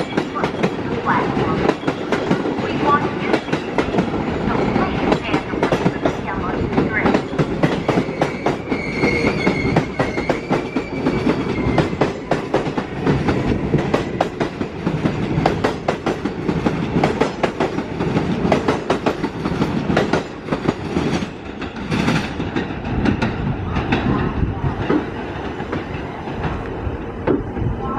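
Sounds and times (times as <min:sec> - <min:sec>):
train wheels clattering: 0:00.0 - 0:27.6
low train rumble: 0:00.0 - 0:27.9
high-pitched wheel squeal: 0:07.9 - 0:11.9.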